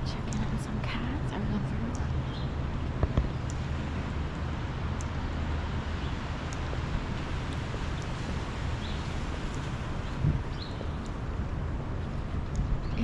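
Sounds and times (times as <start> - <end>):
distant traffic hum: 0.0 - 13.0
faint clicks: 4.3 - 5.2.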